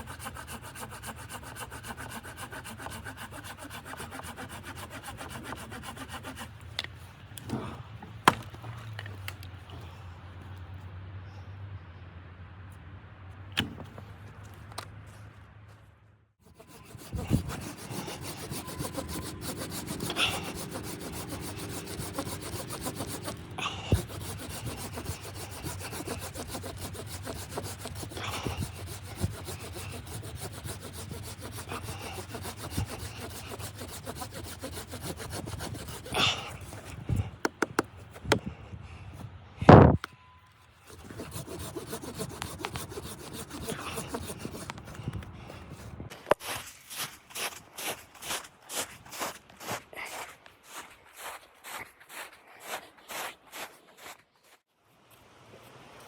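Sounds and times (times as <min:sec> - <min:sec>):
rasping scrape on wood: 0:00.0 - 0:06.6, 0:16.4 - 0:38.5, 0:40.8 - 0:45.2.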